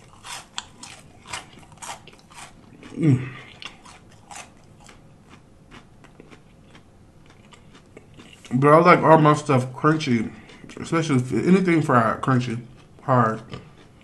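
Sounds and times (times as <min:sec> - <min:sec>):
chewing crunchy fried food: 0:00.0 - 0:14.0
person humming mmm: 0:02.8 - 0:03.6.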